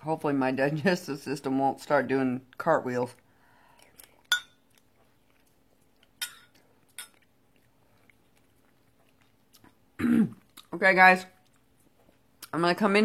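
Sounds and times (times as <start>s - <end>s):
faint steady hum: 0.0s - 13.0s
tableware clinking against bowl: 4.3s - 4.6s, 6.2s - 7.2s.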